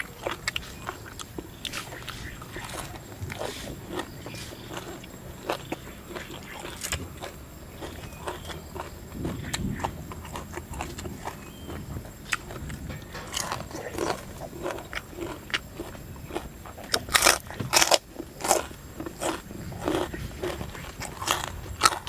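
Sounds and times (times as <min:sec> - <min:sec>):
chewing: 0:00.0 - 0:22.0.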